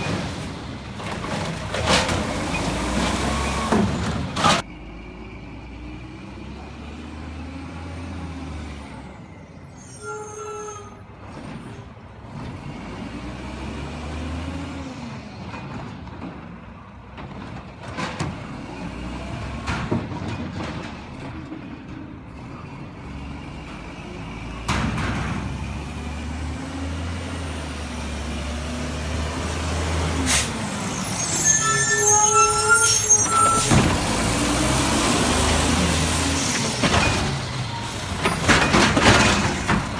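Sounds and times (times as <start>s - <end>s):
garbage truck engine: 0.0s - 9.8s, 11.0s - 39.9s
high-pitched squealing: 30.8s - 33.8s.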